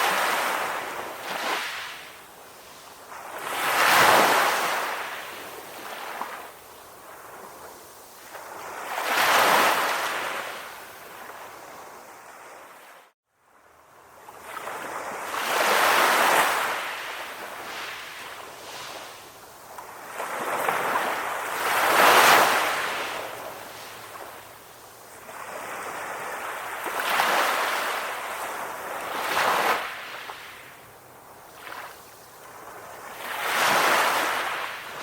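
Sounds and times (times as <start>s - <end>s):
calm ocean waves washing ashore: 0.0s - 35.0s.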